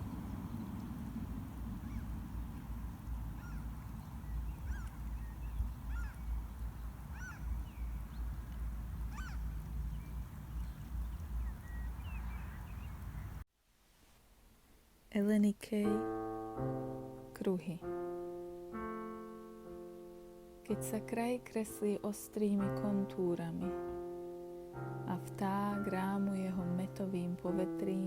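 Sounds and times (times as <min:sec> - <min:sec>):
birds honking calls: 0:00.0 - 0:13.4
steady low rumble: 0:00.0 - 0:13.4.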